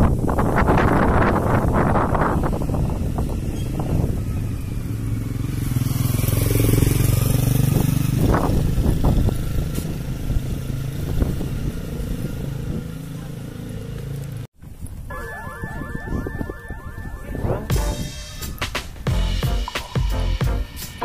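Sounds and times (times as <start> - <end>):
vehicle engine passing by: 1.7 - 14.5.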